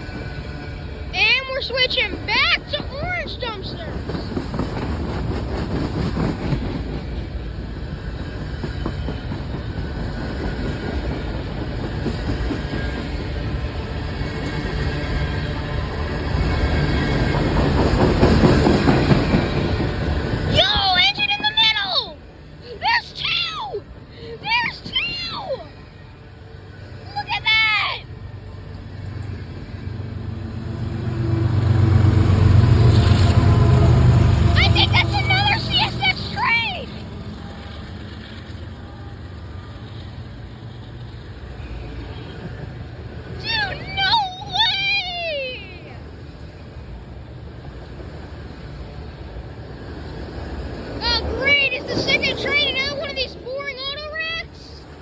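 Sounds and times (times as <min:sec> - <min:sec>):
freight train wheels rumbling: 0:00.0 - 0:55.0
wheels clacking over rail joints: 0:01.6 - 0:22.2, 0:47.6 - 0:55.0.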